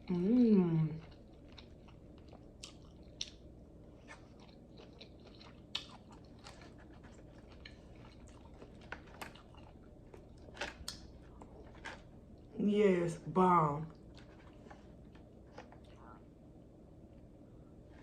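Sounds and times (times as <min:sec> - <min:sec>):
chewing and biting food: 0:00.9 - 0:12.5, 0:13.9 - 0:16.2.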